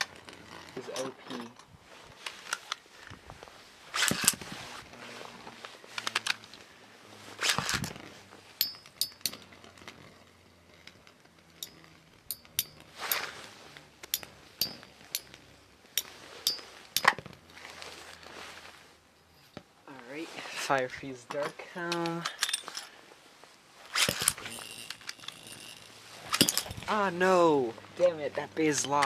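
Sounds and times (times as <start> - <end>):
rustling swishes: 1.7 - 21.5
spinning tops clicking: 23.9 - 27.0.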